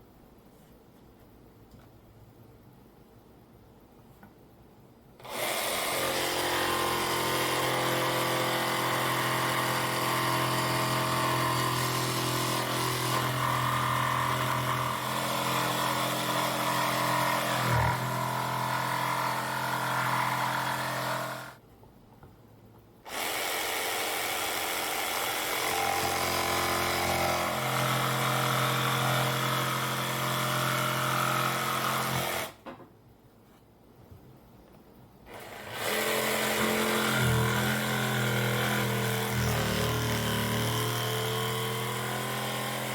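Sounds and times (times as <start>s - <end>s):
jigsaw cutting wood: 5.2s - 21.6s, 23.1s - 32.6s, 35.3s - 42.9s.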